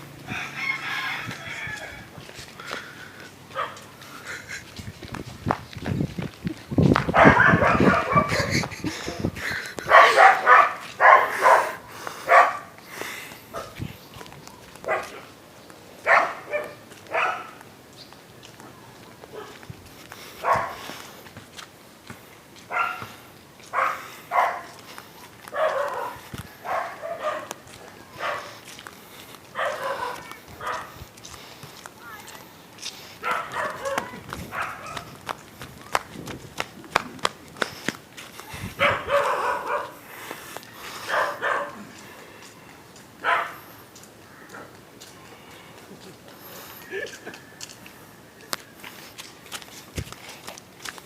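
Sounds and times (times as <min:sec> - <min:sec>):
dog barking: 0:03.5 - 0:03.8, 0:07.1 - 0:08.5, 0:09.8 - 0:12.7, 0:13.5 - 0:13.8, 0:14.8 - 0:15.3, 0:16.0 - 0:17.6, 0:19.3 - 0:19.6, 0:20.4 - 0:20.8, 0:22.7 - 0:24.8, 0:25.5 - 0:28.6, 0:29.6 - 0:30.9, 0:33.2 - 0:35.1, 0:38.8 - 0:40.0, 0:41.0 - 0:41.9, 0:43.2 - 0:43.7.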